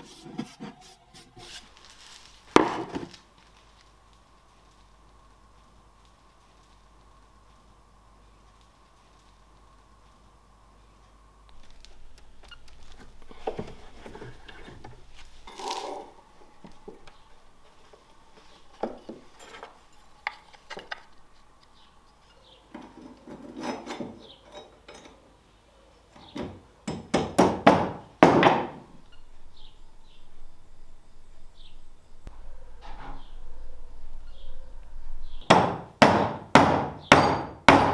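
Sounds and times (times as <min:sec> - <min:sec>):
hand tool scraping wood: 0:00.0 - 0:03.6, 0:12.6 - 0:16.2
sharp knocks on wood: 0:26.9 - 0:28.8, 0:35.5 - 0:37.9.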